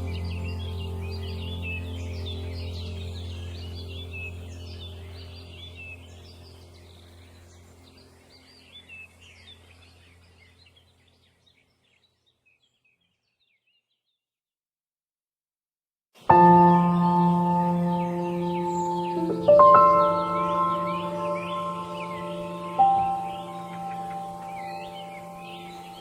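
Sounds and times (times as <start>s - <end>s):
low drone: 0.0s - 9.8s, 16.3s - 26.0s
songbirds chirping: 0.0s - 14.2s, 16.2s - 26.0s.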